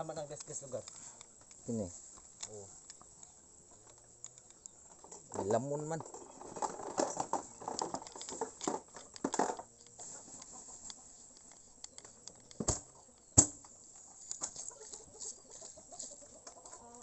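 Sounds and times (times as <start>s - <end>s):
sharp knocks: 13.4s - 13.7s.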